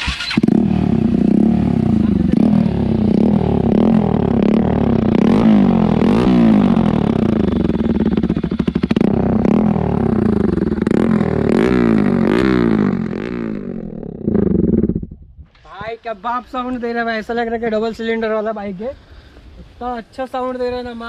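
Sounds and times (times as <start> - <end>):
motorcycle engine revving: 0.0 - 15.4.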